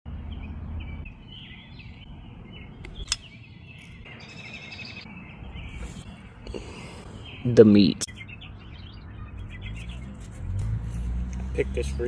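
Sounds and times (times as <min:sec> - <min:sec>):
birds chirping and calling: 0:00.1 - 0:12.0
bird trill: 0:00.2 - 0:10.4
sharp click: 0:02.8 - 0:04.0.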